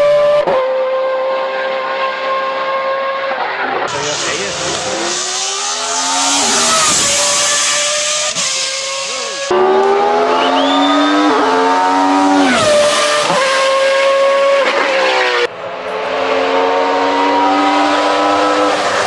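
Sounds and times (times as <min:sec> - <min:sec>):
racing engine at full throttle: 0:00.0 - 0:19.0.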